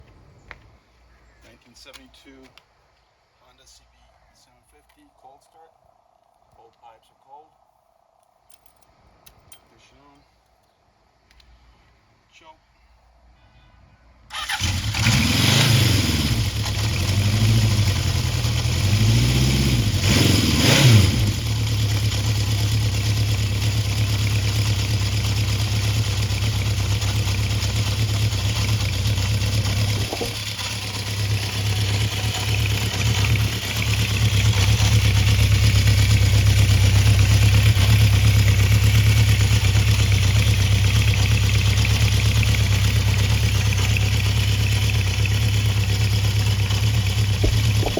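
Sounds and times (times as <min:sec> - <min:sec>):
motorcycle engine idling: 0:15.8 - 0:47.9.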